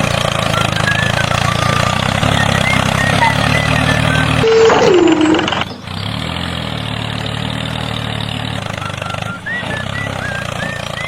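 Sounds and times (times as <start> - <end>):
tractor engine idling: 0.0 - 11.0
tone sliding down in pitch: 3.1 - 5.9.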